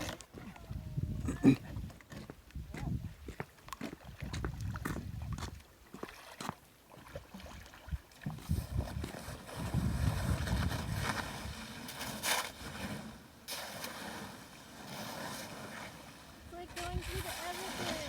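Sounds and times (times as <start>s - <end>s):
wind rumbling on microphone: 0.0s - 5.6s, 7.9s - 13.1s, 16.4s - 18.0s
canoe paddling through water: 0.0s - 18.0s.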